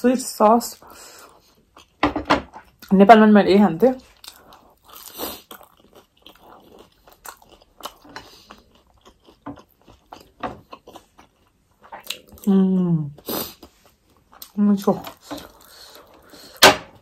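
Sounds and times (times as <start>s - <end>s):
crunchy chewing: 4.0s - 12.5s.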